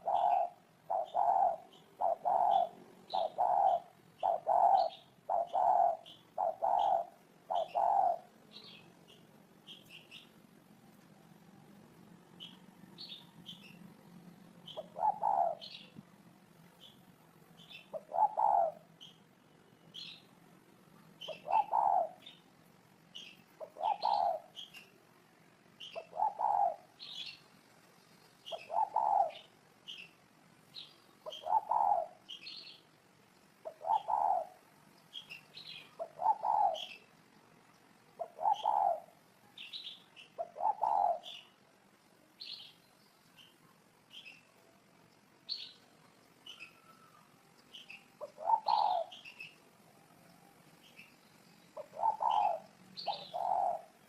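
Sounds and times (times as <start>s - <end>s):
dove cooing: 0.0s - 8.8s, 14.7s - 15.9s, 17.7s - 18.9s, 21.2s - 22.4s, 23.6s - 24.7s, 25.8s - 27.2s, 28.5s - 29.5s, 31.2s - 32.3s, 33.6s - 34.7s, 35.6s - 37.0s, 38.2s - 39.2s, 40.4s - 41.5s, 48.2s - 49.6s, 51.8s - 54.0s
small bird chirping: 0.0s - 10.5s, 12.2s - 16.0s, 16.6s - 25.0s, 25.7s - 41.6s, 42.4s - 54.0s.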